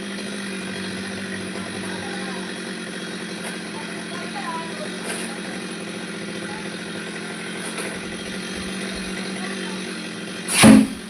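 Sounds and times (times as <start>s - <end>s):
small engine humming: 0.0s - 11.0s
loud sharp thud: 10.5s - 11.0s.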